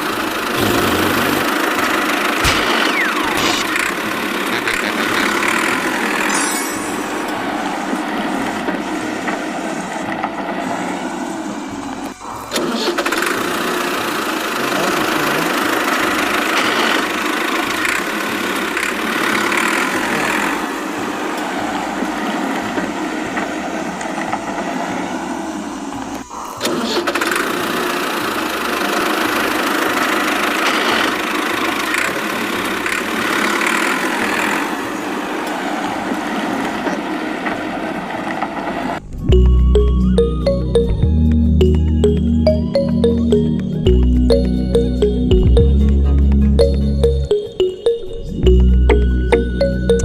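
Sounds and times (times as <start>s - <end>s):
motor running: 0.3s - 6.3s
music: 39.0s - 50.0s.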